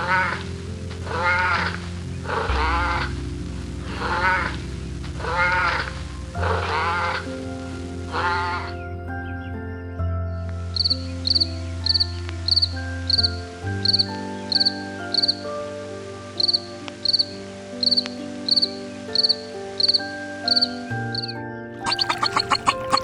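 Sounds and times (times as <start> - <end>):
background music with held notes: 0.0 - 23.0
cricket chirping: 21.8 - 23.0.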